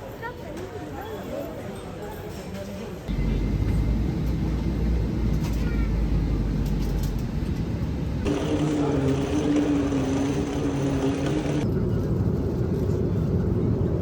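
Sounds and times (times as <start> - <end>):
steady droning hum: 3.1 - 11.6
vehicle rumble: 3.1 - 14.0.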